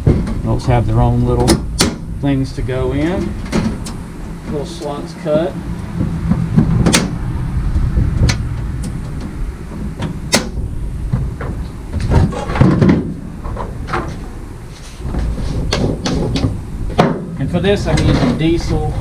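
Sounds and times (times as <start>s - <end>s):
rubbing and handling noise: 11.1s - 16.6s.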